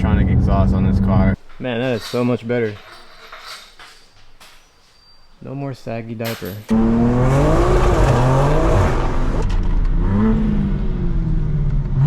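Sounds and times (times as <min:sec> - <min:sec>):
car engine revving: 0:00.0 - 0:01.4, 0:06.7 - 0:12.0.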